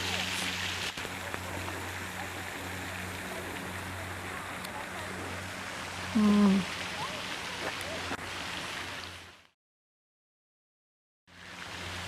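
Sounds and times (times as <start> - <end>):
low steady hum: 0.0 - 9.1
running water rushing: 0.0 - 9.5, 11.3 - 12.0.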